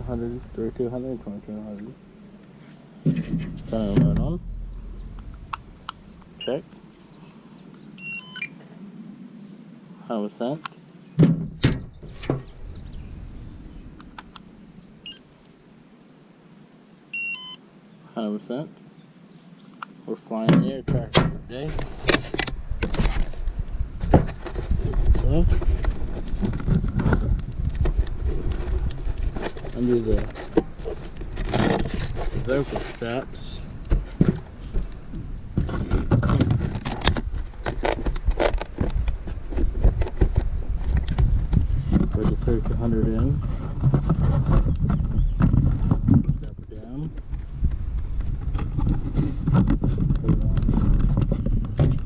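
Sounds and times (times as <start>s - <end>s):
handling noise rumble: 0.0s - 7.2s, 20.5s - 52.0s
electronic device beeping: 6.4s - 6.7s, 8.0s - 8.6s, 15.0s - 15.2s, 17.1s - 17.6s
two-tone beep: 8.0s - 8.5s, 17.2s - 17.6s.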